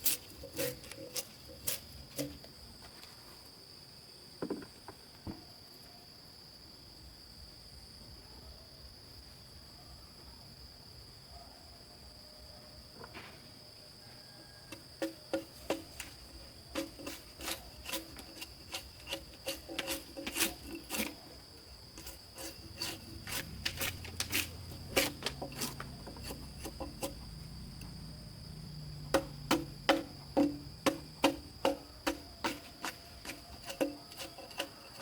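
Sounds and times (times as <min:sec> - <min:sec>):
insects droning: 0:00.0 - 0:35.0
sharp knocks on wood: 0:29.1 - 0:32.6.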